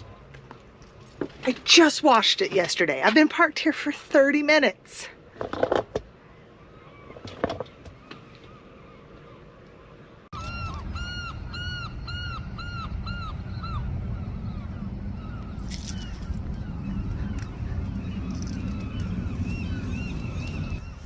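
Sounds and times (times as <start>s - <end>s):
outdoor rumble: 5.0s - 21.0s
gull yelping calls: 10.4s - 21.0s.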